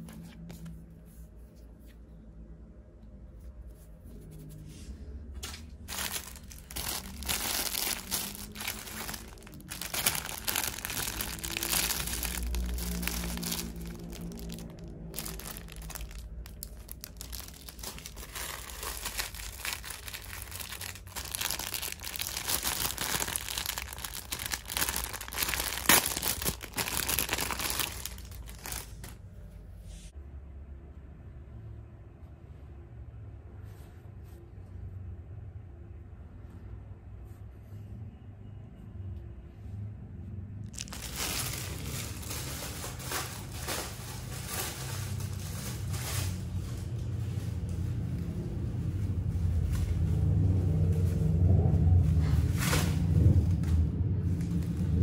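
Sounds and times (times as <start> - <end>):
plastic packaging crinkling: 5.8 - 29.2, 40.7 - 48.2.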